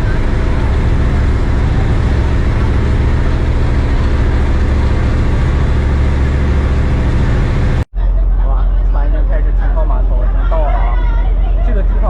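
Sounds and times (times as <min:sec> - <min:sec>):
wind and water rushing: 0:00.0 - 0:07.8
boat engine droning: 0:00.0 - 0:12.0.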